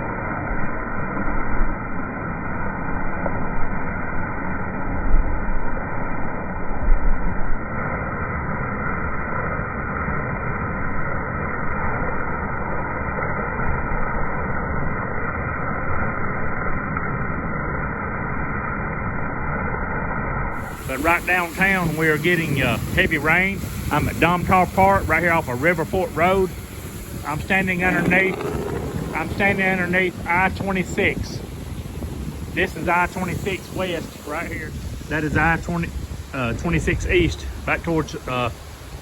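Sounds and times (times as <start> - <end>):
low rumbles: 20.4 - 39.0
heavy rain rushing: 20.6 - 39.0.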